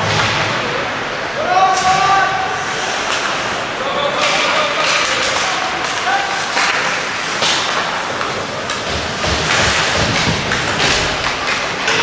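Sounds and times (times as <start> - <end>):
skates scraping ice: 1.5 - 12.0.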